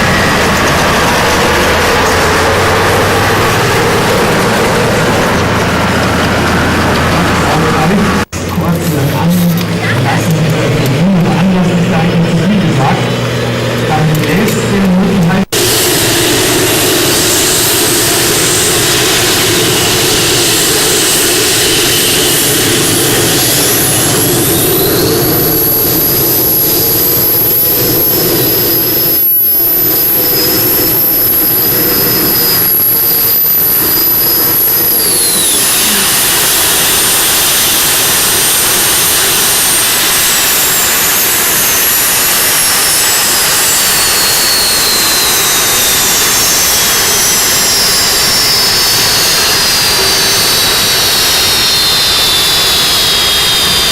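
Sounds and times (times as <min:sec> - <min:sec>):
high engine whine: 0:00.0 - 0:53.9
tractor engine at full power: 0:00.0 - 0:53.9.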